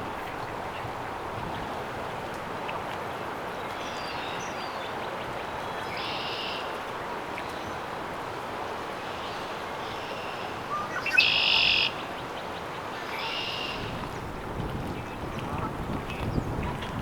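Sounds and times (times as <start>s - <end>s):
outdoor background hiss: 5.9s - 14.0s.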